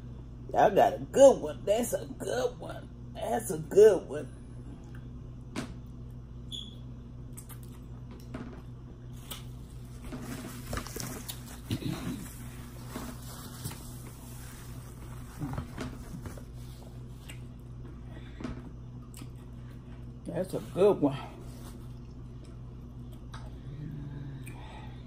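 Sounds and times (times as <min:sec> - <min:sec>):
steady low hum: 0:00.0 - 0:25.0
person chewing: 0:07.3 - 0:08.3, 0:11.0 - 0:12.6, 0:16.9 - 0:17.8, 0:19.0 - 0:19.7.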